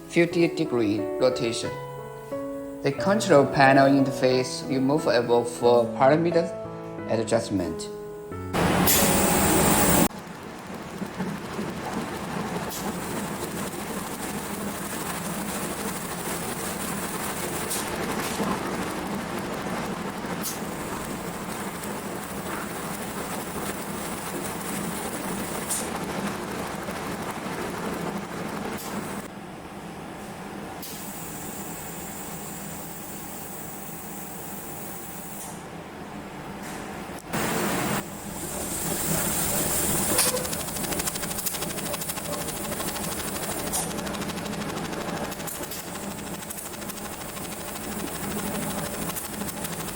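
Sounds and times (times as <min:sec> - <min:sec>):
machine hum: 0:00.0 - 0:30.6, 0:35.7 - 0:49.9
crackling noise: 0:08.5 - 0:29.3, 0:37.3 - 0:49.9
rapid even ticking: 0:38.5 - 0:49.9.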